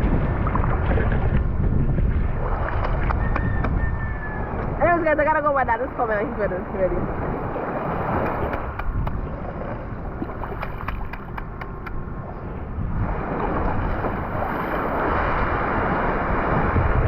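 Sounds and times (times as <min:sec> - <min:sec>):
wind buffeting microphone: 0:00.0 - 0:17.0
waves washing on beach: 0:04.7 - 0:17.0.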